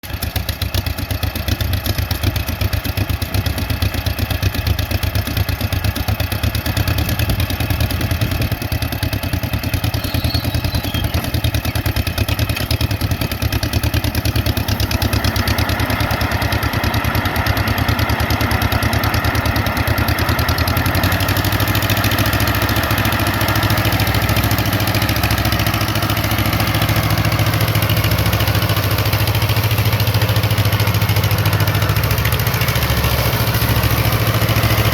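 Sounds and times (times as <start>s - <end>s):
mower engine running: 0.0s - 34.9s
mowing deck cutting grass: 9.6s - 34.9s.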